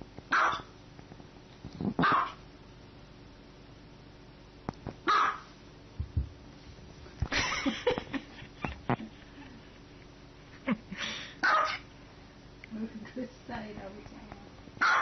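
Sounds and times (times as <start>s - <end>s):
small dog barking: 0.3s - 0.7s, 2.0s - 2.4s, 5.0s - 5.5s, 11.4s - 11.9s, 14.8s - 15.0s.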